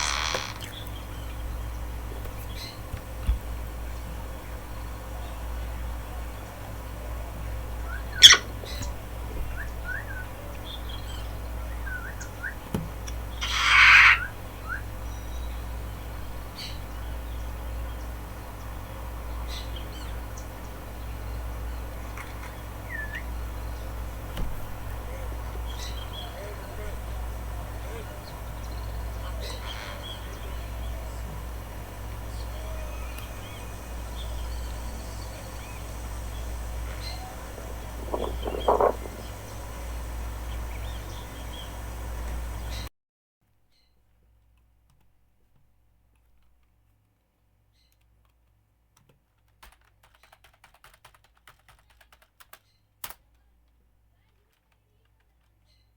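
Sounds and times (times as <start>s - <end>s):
sharp crack: 0.0s - 0.8s
harsh noisy call: 0.0s - 0.9s, 13.4s - 14.4s, 24.8s - 42.9s
small birds chirping: 0.0s - 42.9s
steady low hum: 0.0s - 42.9s
low rumble: 23.4s - 42.9s.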